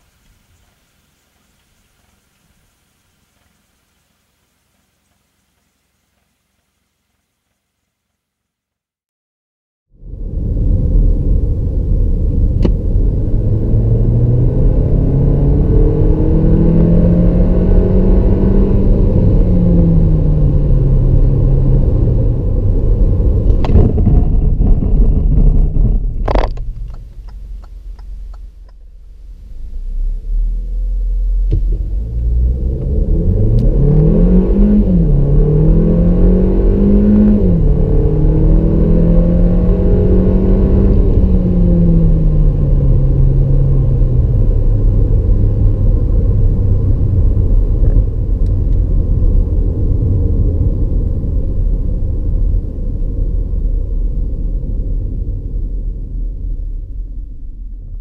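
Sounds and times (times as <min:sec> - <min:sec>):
car engine revving: 0:12.0 - 0:50.7.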